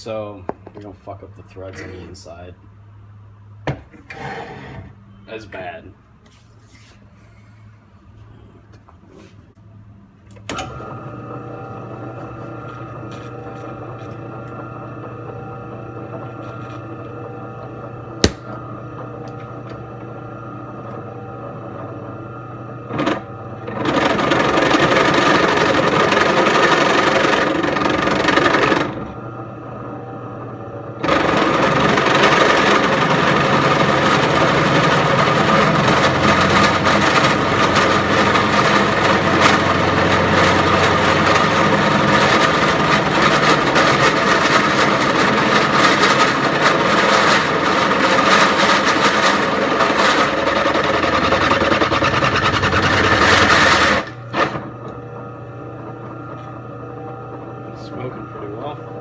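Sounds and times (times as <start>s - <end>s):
drill press motor hum: 10.3s - 59.0s
drill bit grinding metal: 31.0s - 54.6s.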